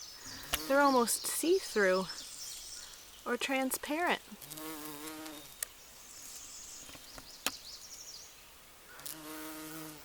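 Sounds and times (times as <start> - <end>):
bumblebee buzzing: 0.3 - 1.1, 4.2 - 6.6, 8.9 - 10.0.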